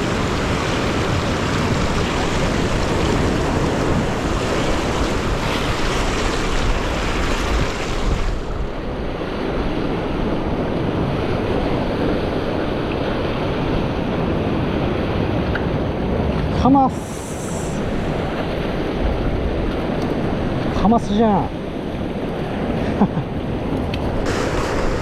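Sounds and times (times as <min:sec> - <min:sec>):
surf washing against rocks: 0:00.0 - 0:25.0
wind buffeting microphone: 0:00.0 - 0:25.0.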